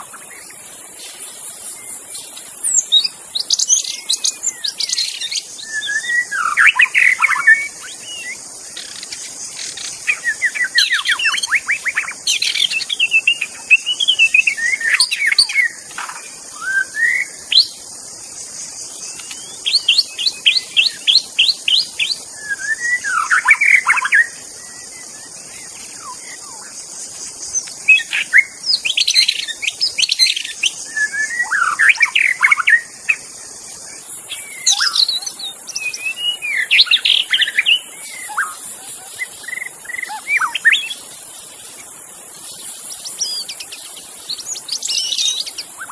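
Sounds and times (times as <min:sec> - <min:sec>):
high insect buzz: 0:00.0 - 0:45.9
bird singing whistled phrases: 0:01.7 - 0:09.0, 0:16.6 - 0:17.7, 0:22.4 - 0:25.3, 0:30.2 - 0:32.9, 0:34.2 - 0:41.1, 0:42.9 - 0:45.9.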